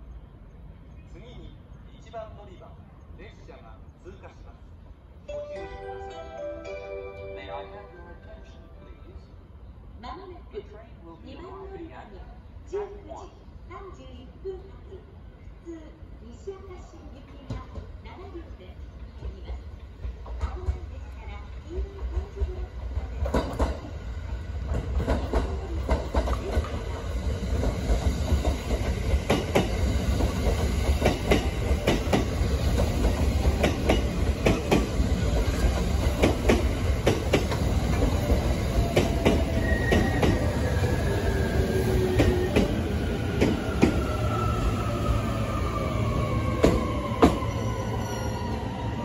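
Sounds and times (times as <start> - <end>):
train rumble passing: 17.4 - 49.0.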